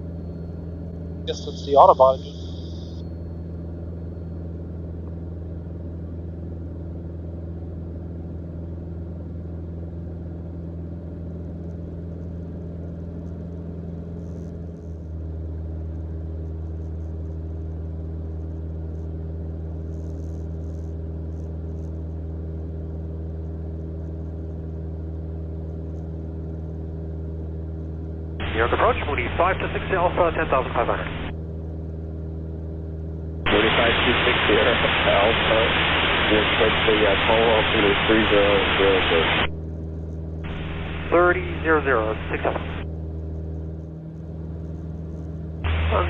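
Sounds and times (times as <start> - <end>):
aircraft engine and propeller drone: 0.0 - 14.0, 22.4 - 44.6, 45.4 - 46.0.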